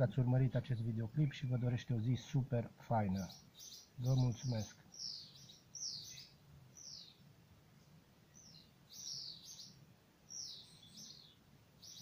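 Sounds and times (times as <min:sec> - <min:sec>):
small bird chirping: 0:03.0 - 0:07.2, 0:07.8 - 0:12.0.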